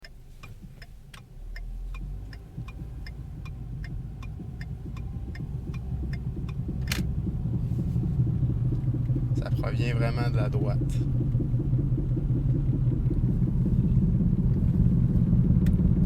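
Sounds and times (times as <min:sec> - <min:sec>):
road rumble: 0:00.0 - 0:16.0
wheel ticking: 0:00.0 - 0:16.0
sharp click: 0:05.3 - 0:07.1.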